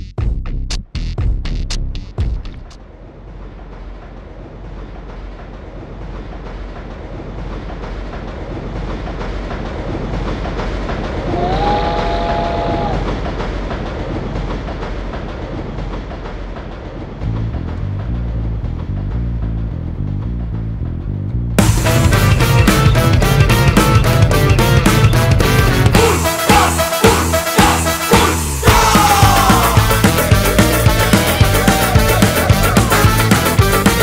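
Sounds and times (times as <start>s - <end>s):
train passing rumble: 2.8s - 34.0s
train horn: 25.6s - 29.7s.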